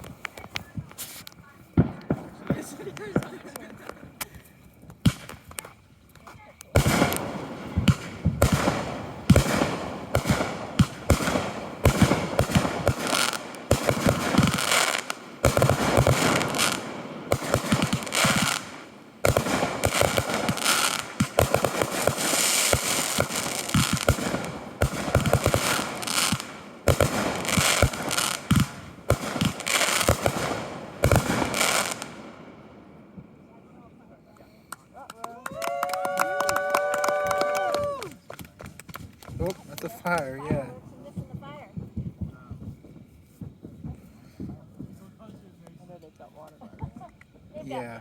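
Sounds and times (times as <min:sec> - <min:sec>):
fireworks bangs and crackling: 0:00.0 - 0:48.0.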